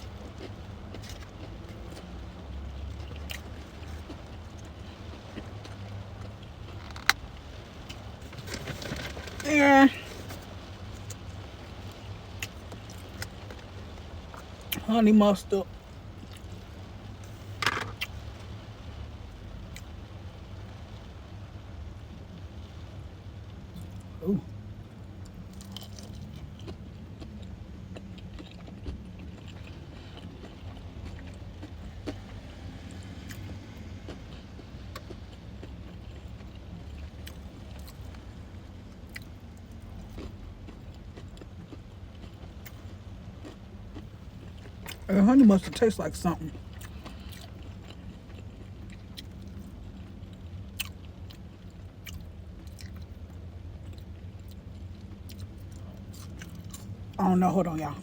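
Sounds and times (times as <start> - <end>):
mouth chewing food: 0.0 - 7.2, 25.2 - 38.3, 39.0 - 45.8, 46.4 - 58.0.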